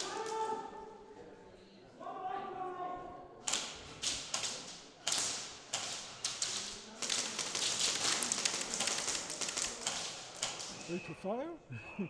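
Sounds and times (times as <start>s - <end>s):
airsoft guns firing: 3.4s - 11.0s.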